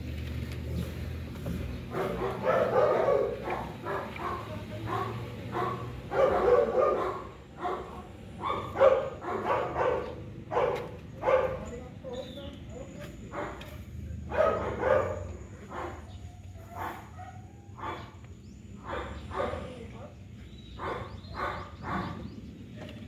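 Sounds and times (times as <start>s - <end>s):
dog barking: 1.9s - 11.8s, 13.3s - 18.2s, 18.8s - 19.9s, 20.8s - 22.3s.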